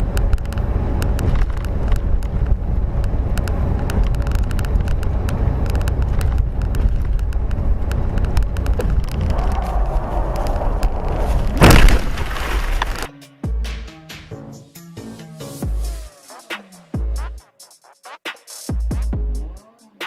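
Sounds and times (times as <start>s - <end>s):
car road and engine noise: 0.0s - 13.1s.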